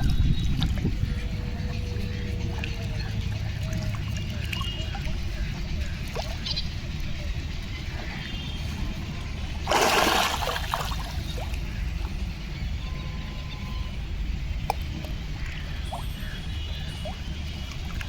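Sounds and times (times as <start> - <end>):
water splash: 9.6 - 11.5
faint small splashes: 9.6 - 12.1, 14.6 - 18.0.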